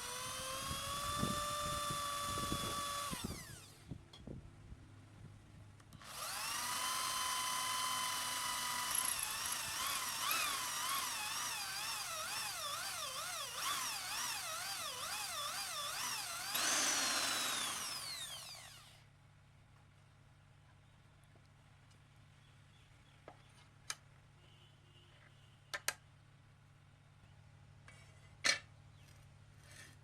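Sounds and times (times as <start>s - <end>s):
electric power tool whining: 0.0s - 3.8s, 6.0s - 19.0s.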